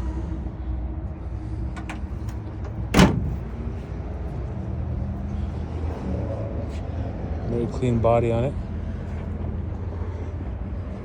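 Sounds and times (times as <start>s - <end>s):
steady low rumble: 0.0s - 11.0s
tailgate slamming shut: 1.8s - 3.6s.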